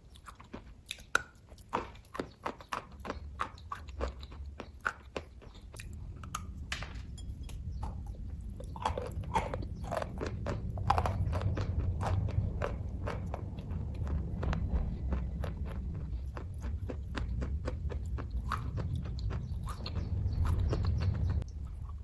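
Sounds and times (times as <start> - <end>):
chewing with mouth clicks: 0.0 - 22.0
low rumble: 5.7 - 22.0.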